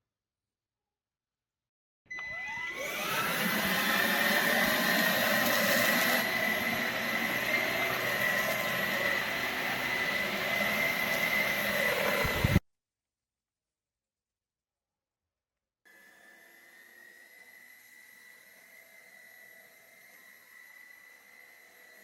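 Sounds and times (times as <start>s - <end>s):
stick vacuum motor whining: 2.1s - 12.6s.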